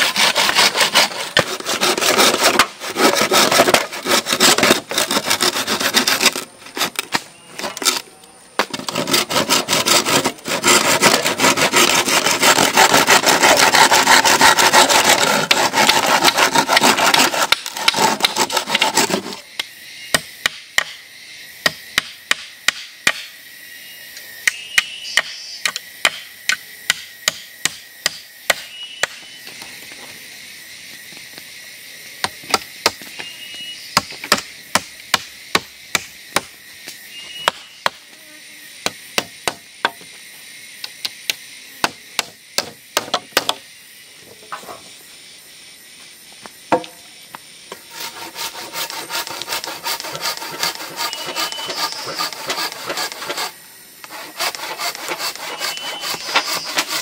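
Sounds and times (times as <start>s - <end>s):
rasping on wood: 0.0s - 7.0s, 8.7s - 19.4s, 47.9s - 57.0s.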